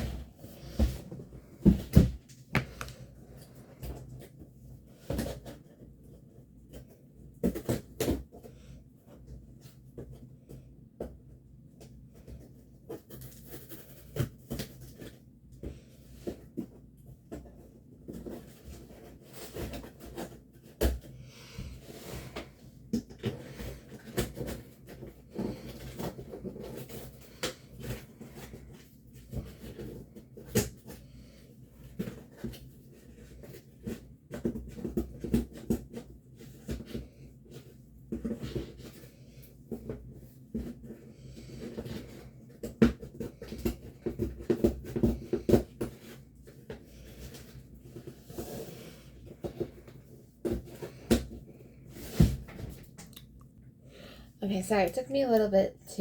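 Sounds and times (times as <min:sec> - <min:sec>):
knocks and taps on packaging: 0:01.6 - 0:03.0.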